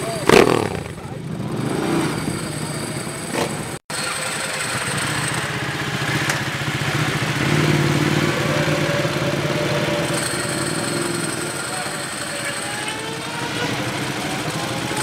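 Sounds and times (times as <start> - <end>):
motorcycle engine idling: 0.0 - 15.0
motorcycle pulling away: 0.0 - 15.0.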